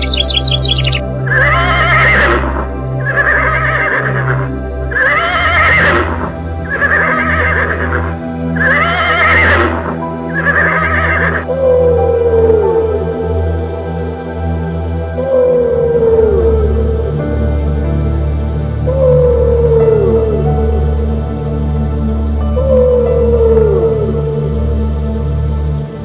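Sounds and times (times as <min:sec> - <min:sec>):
horse whinnying: 0:00.0 - 0:11.4
background music: 0:00.0 - 0:26.0.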